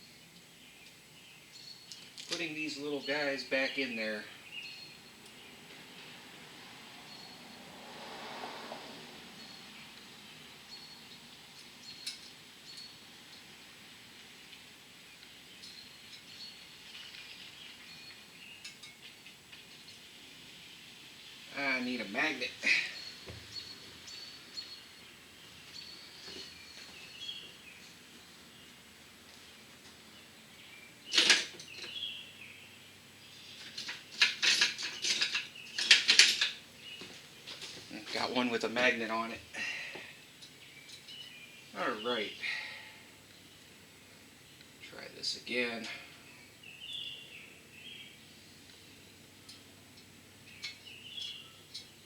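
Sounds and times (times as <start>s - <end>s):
birds chirping faintly: 0.0s - 52.0s
small metallic clicks: 11.6s - 13.5s
metal hand tools clattering: 33.6s - 36.6s.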